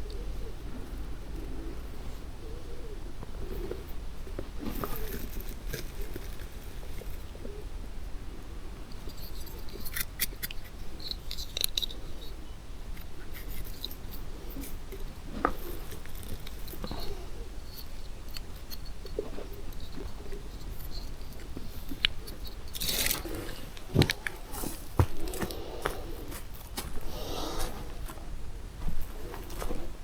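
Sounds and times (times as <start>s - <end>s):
forest floor litter crackling: 22.9s - 30.0s.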